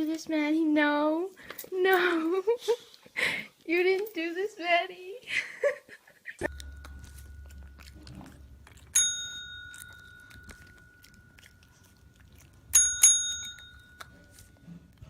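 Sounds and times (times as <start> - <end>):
faint low hum: 6.4 - 15.0
small bell ringing: 8.9 - 11.9, 12.7 - 14.7.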